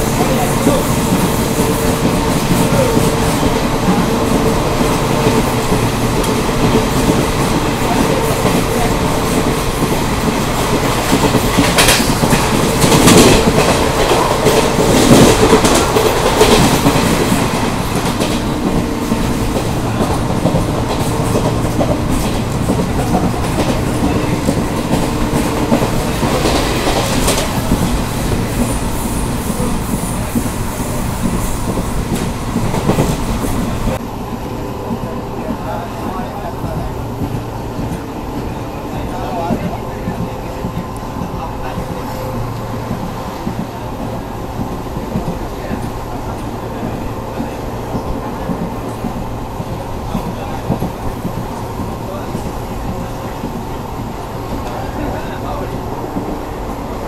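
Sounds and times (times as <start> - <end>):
train wheels clattering over rail joints: 0.0 - 34.0
freight train rushing past: 0.0 - 57.0.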